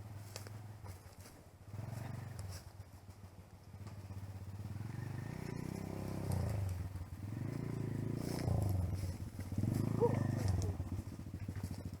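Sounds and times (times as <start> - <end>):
dirt bike engine revving: 1.7 - 2.6, 4.0 - 12.0.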